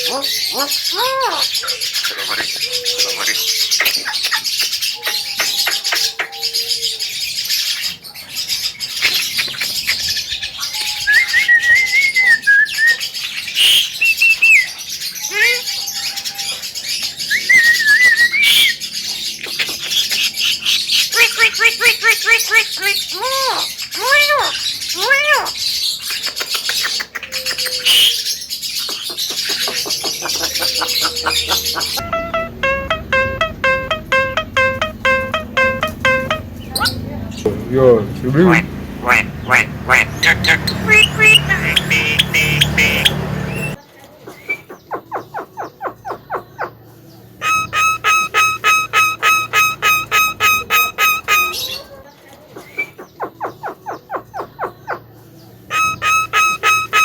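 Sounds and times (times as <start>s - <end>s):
myna chattering clicking calls: 0.0s - 6.4s, 8.9s - 11.0s, 19.3s - 23.0s, 26.0s - 28.0s, 28.8s - 37.1s, 47.4s - 51.7s
bird chirping and clicking: 3.2s - 6.3s, 9.0s - 10.1s, 26.1s - 28.1s
bird whistling: 10.7s - 13.0s, 17.3s - 18.8s, 30.1s - 37.0s, 40.2s - 43.8s, 47.4s - 51.7s, 55.7s - 57.0s.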